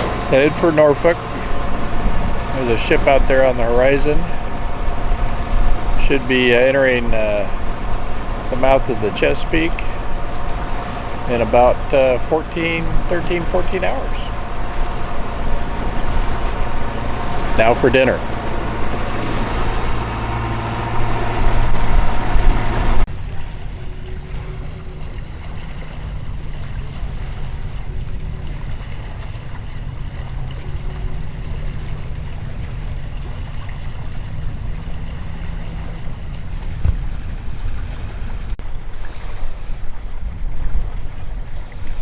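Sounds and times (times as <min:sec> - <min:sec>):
steady hum: 0:00.0 - 0:23.1
boat engine drone: 0:00.0 - 0:42.0
water noise: 0:00.0 - 0:42.0
wind: 0:00.0 - 0:42.0.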